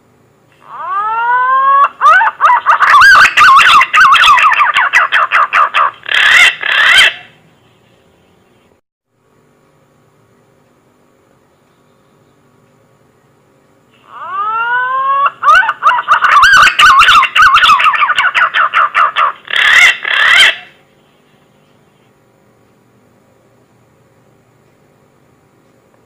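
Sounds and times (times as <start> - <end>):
pigeon whistling song: 0.8 - 7.3, 14.2 - 20.7.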